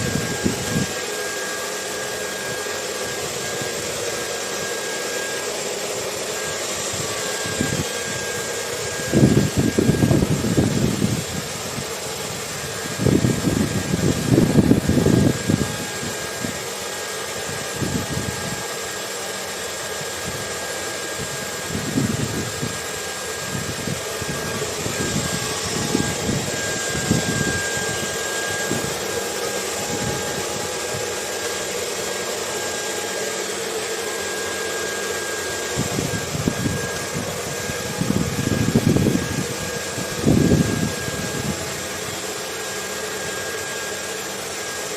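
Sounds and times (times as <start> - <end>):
gusts of wind: 0.0 - 4.7, 5.7 - 18.9, 20.0 - 43.2
hair dryer running: 0.0 - 44.9.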